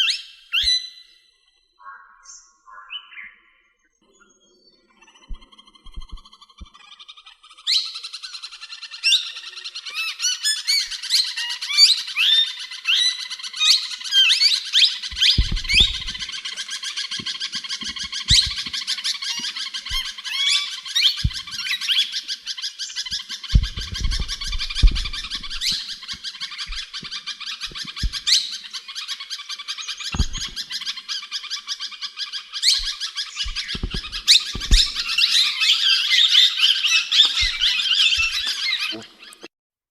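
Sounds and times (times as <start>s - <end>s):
soft low thumps: 5.3s - 6.2s, 15.1s - 16.3s, 21.2s - 21.7s, 23.5s - 26.0s, 27.7s - 28.3s, 30.1s - 30.6s, 32.8s - 35.2s
parrot chirping and squawking: 9.9s - 31.5s, 32.4s - 39.5s.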